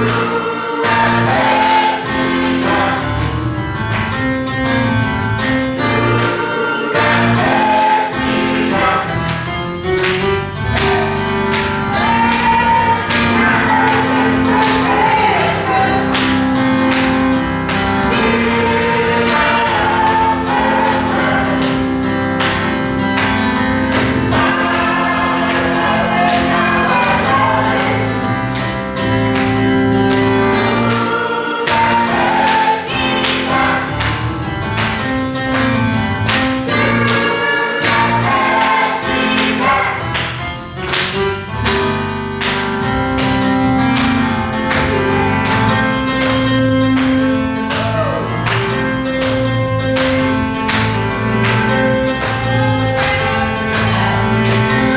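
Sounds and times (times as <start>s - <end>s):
choir singing gospel: 0.0s - 54.9s.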